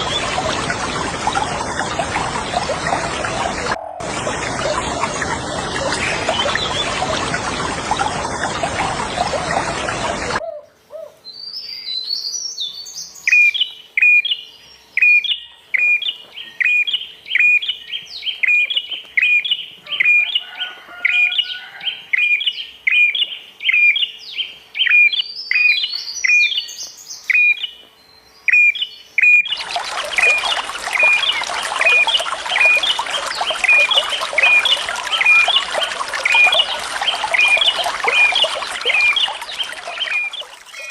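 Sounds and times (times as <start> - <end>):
running water rushing: 0.0 - 10.4, 29.5 - 40.9
songbird chirping: 9.2 - 40.9.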